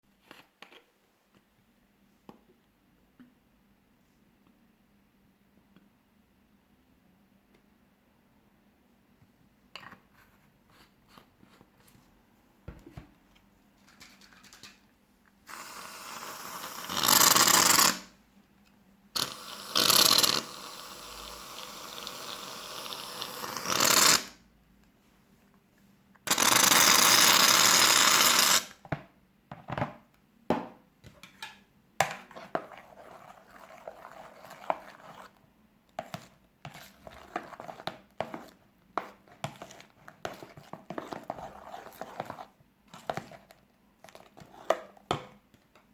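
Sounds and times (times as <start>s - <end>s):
shaving foam spraying from can: 26.3s - 28.7s
sticky clicks and squelches stirring: 32.2s - 45.9s.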